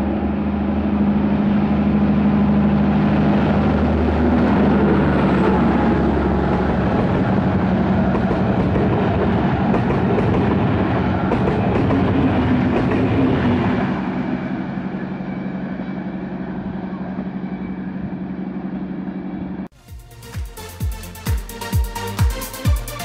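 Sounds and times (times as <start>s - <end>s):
wheels rumbling on rails: 0.0s - 19.8s
low engine drone: 0.0s - 23.0s.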